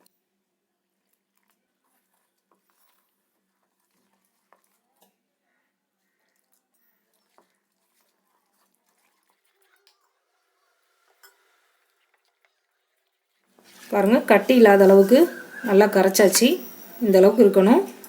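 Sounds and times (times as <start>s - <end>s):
batter stirred in a bowl: 0.0s - 18.0s.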